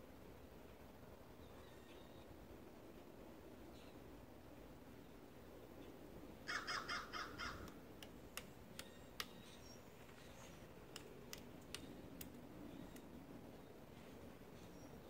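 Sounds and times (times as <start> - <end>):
woodpecker harsh call: 6.4 - 7.8.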